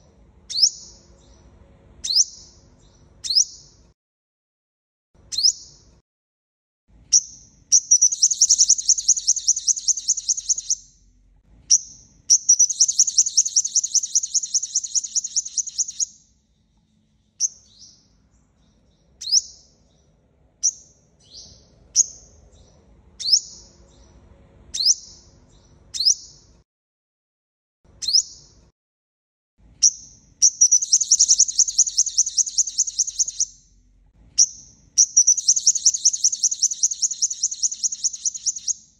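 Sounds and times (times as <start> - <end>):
bird chirping: 0.0 - 3.9, 5.2 - 6.0, 7.1 - 26.6, 28.0 - 28.6, 29.8 - 38.9
bird trilling: 7.7 - 10.9, 11.7 - 16.2, 29.8 - 33.6, 34.4 - 38.8.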